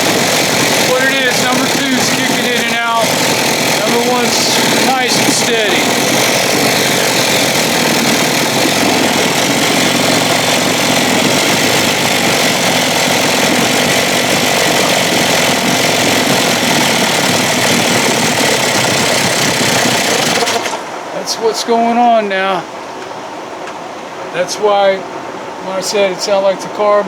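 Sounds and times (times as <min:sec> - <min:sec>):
outboard motor running: 0:00.0 - 0:21.1.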